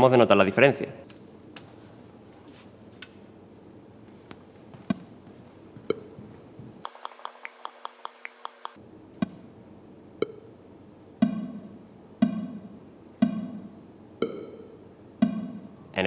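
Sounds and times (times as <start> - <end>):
test clicks through loudspeakers: 6.8 - 9.4, 11.2 - 14.6.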